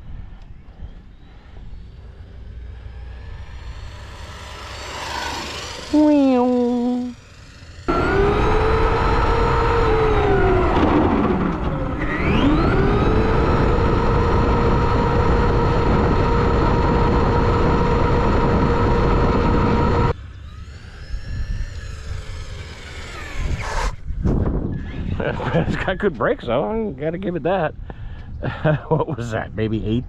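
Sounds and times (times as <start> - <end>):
rc car electric motor whining: 1.2 - 24.1.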